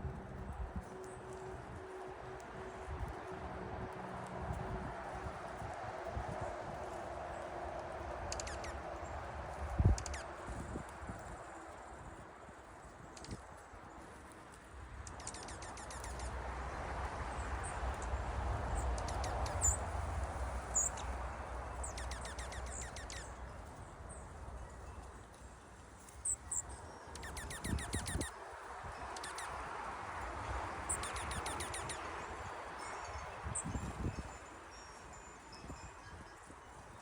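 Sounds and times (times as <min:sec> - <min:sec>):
small birds trilling: 0:18.8 - 0:19.9, 0:21.8 - 0:23.4, 0:26.3 - 0:28.3, 0:30.9 - 0:32.1.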